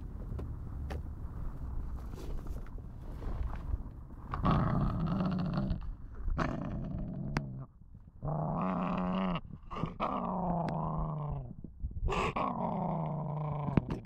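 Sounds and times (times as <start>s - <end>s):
puppy growling: 4.3s - 14.0s.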